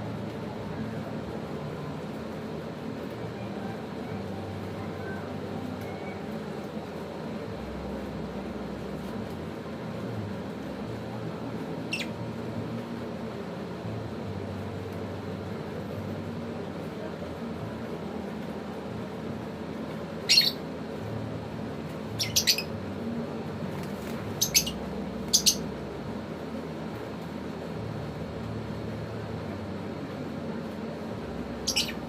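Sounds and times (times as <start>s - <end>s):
low background hum: 0.0s - 32.0s
lovebirds squawking: 20.2s - 20.6s, 22.2s - 22.8s, 24.3s - 25.7s, 31.6s - 32.0s.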